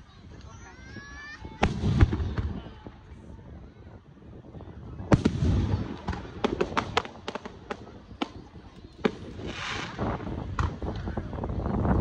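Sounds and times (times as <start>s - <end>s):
firework pops and crackles: 1.6s - 2.7s, 5.0s - 11.5s.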